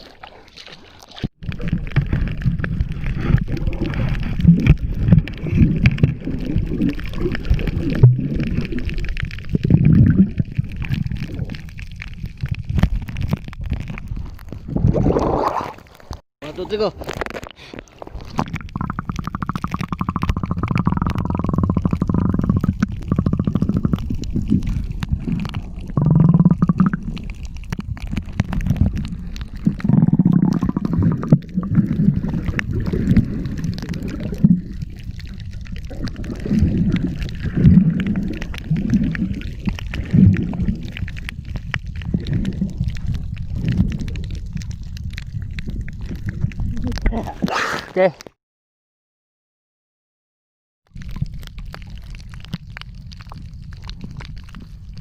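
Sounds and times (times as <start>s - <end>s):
underwater gurgling rumble: 0.0s - 47.5s, 50.9s - 55.0s.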